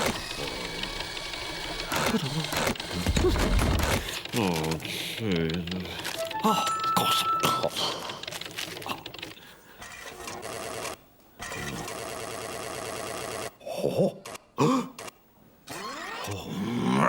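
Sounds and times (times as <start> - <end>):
mechanical whirring clatter: 0.0 - 6.2.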